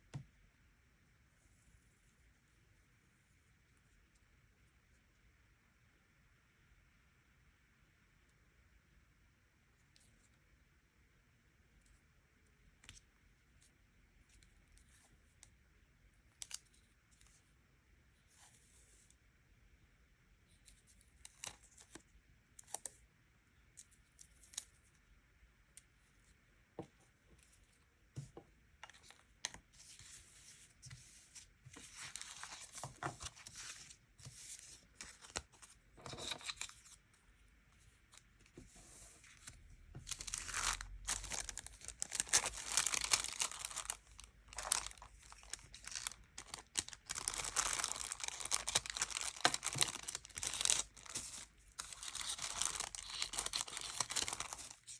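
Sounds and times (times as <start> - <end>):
paper crinkling and tearing: 31.7 - 37.0, 39.2 - 54.9.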